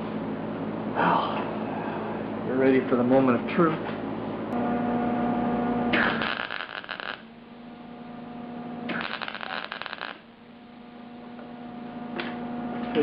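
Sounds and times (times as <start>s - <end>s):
electrical hum: 0.0s - 13.0s
welding arc crackling: 5.9s - 7.6s, 8.8s - 10.4s.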